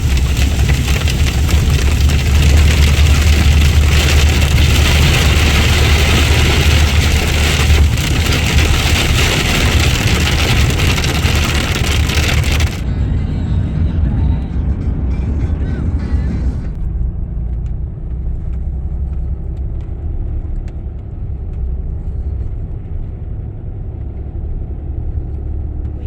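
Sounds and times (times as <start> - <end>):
engine and tyre rumble: 0.0 - 26.0
road and wind noise: 0.0 - 26.0.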